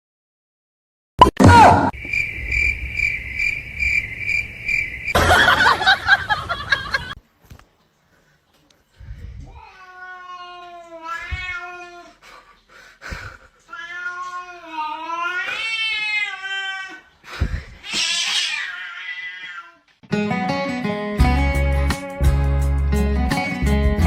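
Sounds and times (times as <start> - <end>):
cat meowing: 9.5 - 12.1, 13.7 - 17.1, 17.8 - 19.9.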